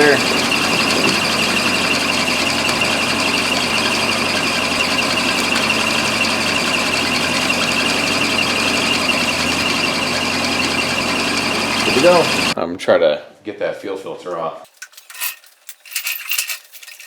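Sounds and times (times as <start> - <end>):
car engine idling: 0.0 - 12.6
high-pitched whine: 0.0 - 12.6.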